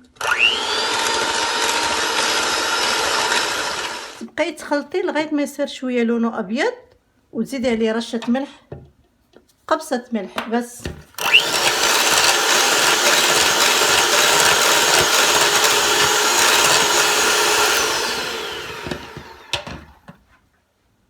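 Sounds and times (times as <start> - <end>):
electric mixer whisking: 0.0 - 4.2, 11.2 - 20.1.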